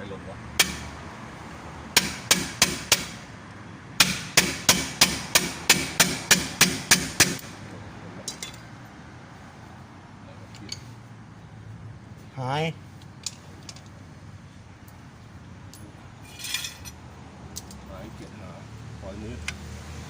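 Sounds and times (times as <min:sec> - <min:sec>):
light clinks: 0:10.5 - 0:11.0.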